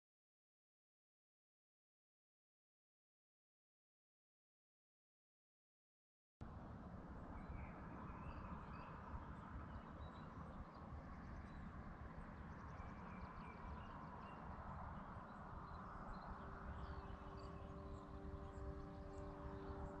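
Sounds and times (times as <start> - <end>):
soft musical drone: 6.5 - 20.0.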